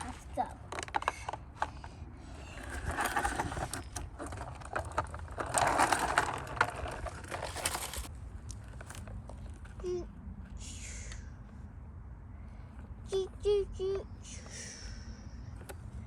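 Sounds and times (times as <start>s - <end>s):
toy truck rolling and rattling: 0.0s - 9.7s.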